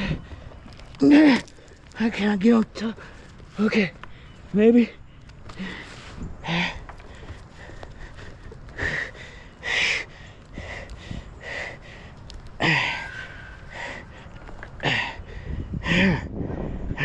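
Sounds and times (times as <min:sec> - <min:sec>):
man breathing hard: 0:05.5 - 0:17.0.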